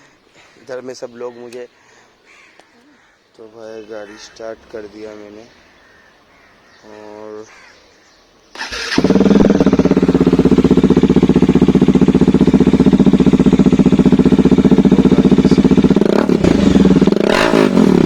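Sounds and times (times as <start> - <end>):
motorcycle engine idling: 8.6 - 18.0.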